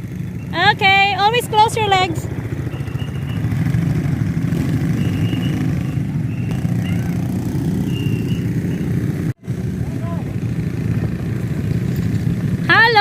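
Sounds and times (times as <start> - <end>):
quad bike engine running: 0.0 - 13.0.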